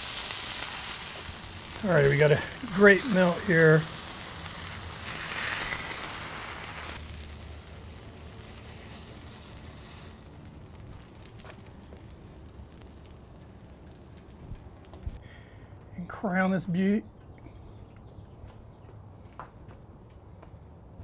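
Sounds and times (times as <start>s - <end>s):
beef patties sizzling on griddle: 0.0s - 15.2s
faint steady hiss: 0.0s - 16.9s.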